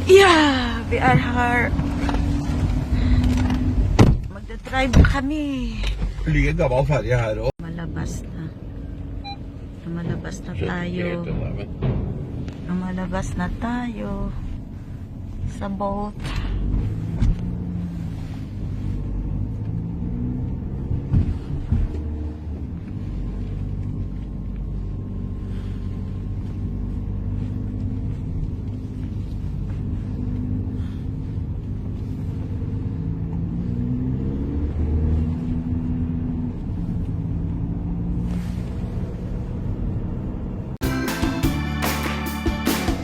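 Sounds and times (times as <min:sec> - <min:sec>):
car engine and road rumble: 0:00.0 - 0:43.0
sharp thump: 0:03.9 - 0:04.3, 0:11.2 - 0:12.5
soft background music: 0:40.8 - 0:43.0.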